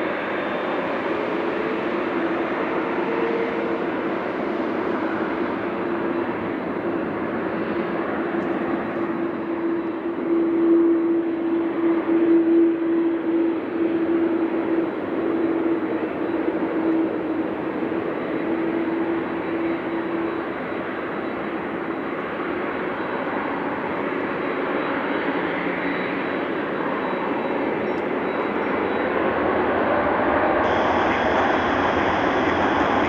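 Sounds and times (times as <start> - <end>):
jet engines at takeoff thrust: 0.0 - 33.0
humming engine tone: 0.1 - 33.0.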